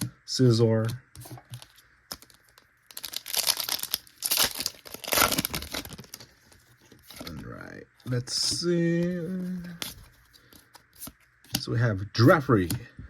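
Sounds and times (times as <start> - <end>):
foil wrapper torn and crinkled: 2.1 - 7.3.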